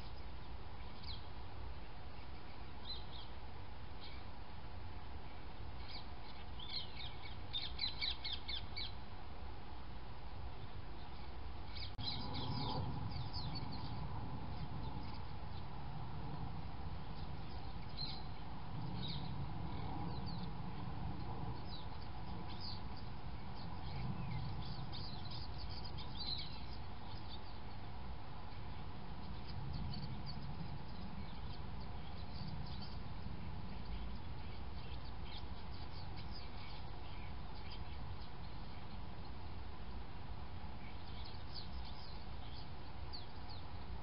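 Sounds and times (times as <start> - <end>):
small birds chirping: 0.0 - 9.5, 10.2 - 44.0
faint steady hum: 0.0 - 44.0
steady low rumble: 0.0 - 44.0.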